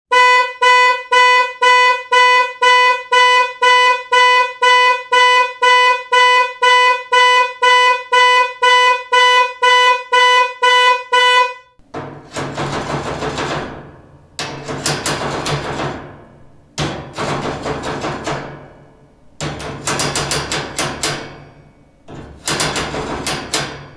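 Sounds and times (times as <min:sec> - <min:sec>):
buzzy horn-like beeping: 0:00.1 - 0:11.8.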